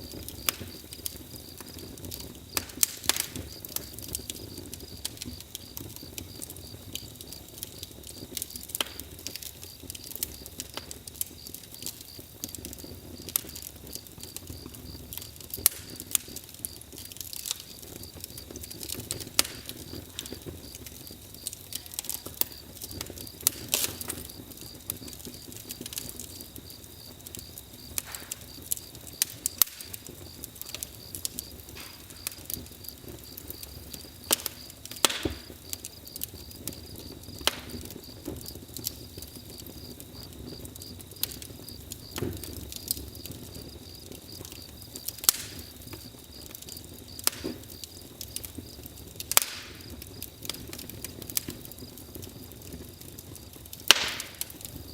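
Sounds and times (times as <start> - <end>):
campfire crackling: 0.0 - 54.9
fire hissing: 0.0 - 54.9
wood popping and snapping: 0.4 - 4.4, 27.9 - 32.7, 34.0 - 35.6, 47.2 - 47.7, 53.7 - 54.8.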